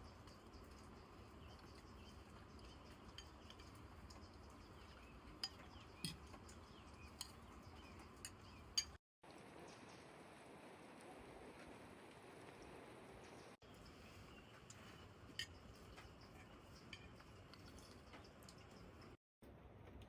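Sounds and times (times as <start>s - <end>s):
faint clicks and clinks: 0.0s - 9.0s, 13.8s - 19.2s.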